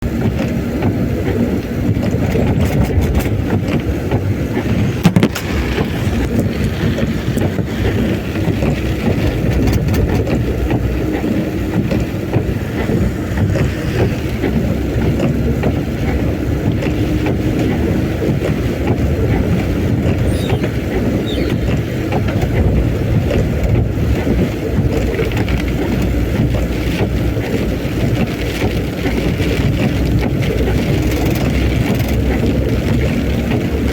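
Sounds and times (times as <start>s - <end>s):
strong wind: 0.0s - 33.9s
vehicle rumble on road: 0.0s - 33.9s
heavy rain: 4.4s - 9.5s.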